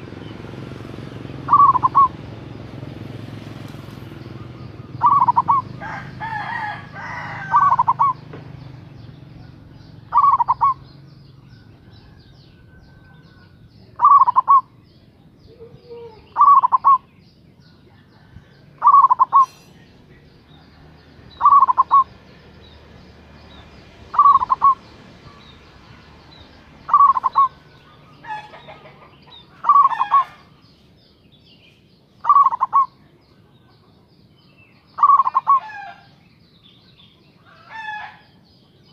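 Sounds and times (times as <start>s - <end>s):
dove cooing: 1.2s - 2.8s, 4.2s - 8.4s, 9.2s - 14.8s, 15.4s - 17.1s, 18.2s - 19.7s, 20.5s - 22.3s, 23.5s - 26.0s, 26.7s - 30.6s, 32.2s - 33.0s, 35.0s - 36.1s.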